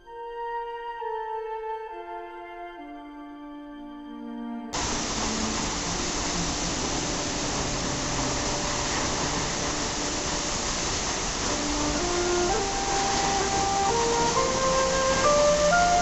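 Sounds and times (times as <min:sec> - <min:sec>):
soft background music: 0:00.0 - 0:16.0
waterfall rushing: 0:04.8 - 0:16.0.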